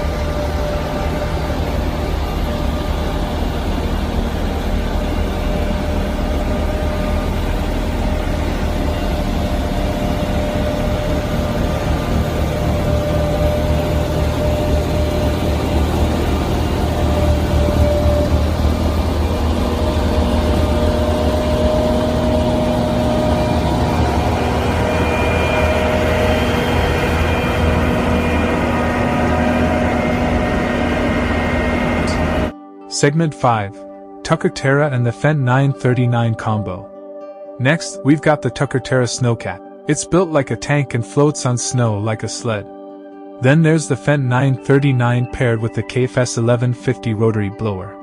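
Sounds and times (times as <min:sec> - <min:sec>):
rotary snowplow engine drone: 0:00.0 - 0:32.6.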